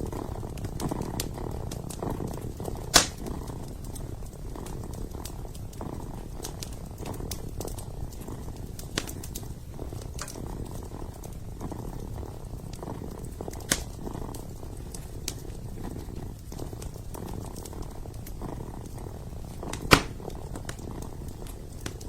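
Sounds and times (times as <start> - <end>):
fire popping: 0.0 - 22.0
kitten purring: 0.0 - 22.0
wood fire crackling: 0.0 - 22.0.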